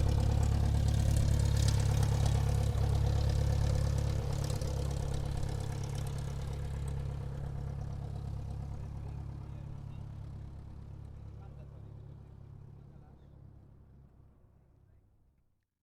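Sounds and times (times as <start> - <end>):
propeller aircraft engine droning: 0.0 - 11.6.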